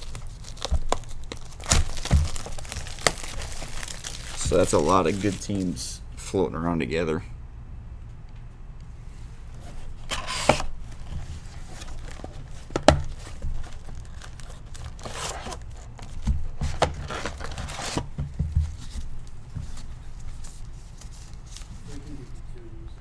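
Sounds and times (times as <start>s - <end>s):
foil wrappers tearing and crinkling: 0.0s - 5.9s, 9.9s - 22.2s.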